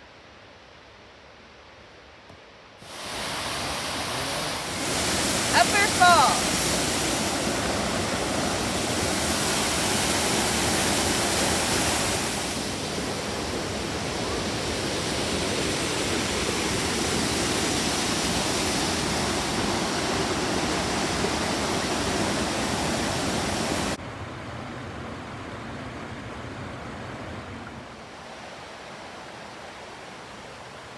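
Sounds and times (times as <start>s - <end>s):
waterfall rushing: 2.8s - 24.0s.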